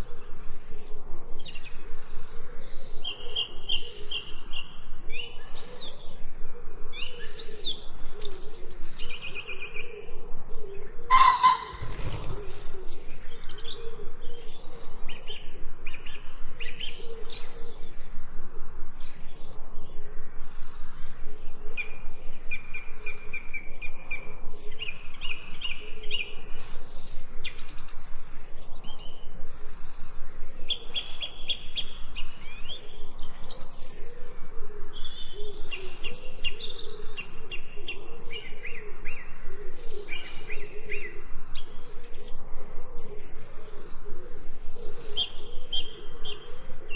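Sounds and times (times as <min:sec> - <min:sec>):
songbirds chirping and singing: 0:00.0 - 0:18.2, 0:18.9 - 0:46.9
low wavering call: 0:11.1 - 0:12.3.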